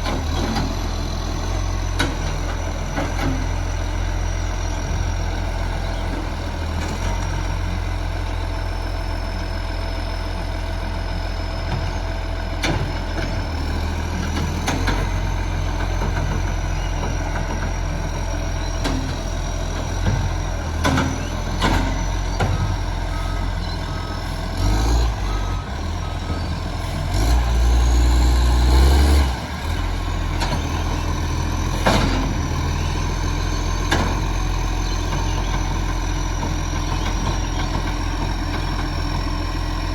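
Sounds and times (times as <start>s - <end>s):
diesel truck engine rumbling: 0.0s - 39.9s
reversing beeper: 15.5s - 37.6s
knocks and clunks: 31.8s - 32.4s.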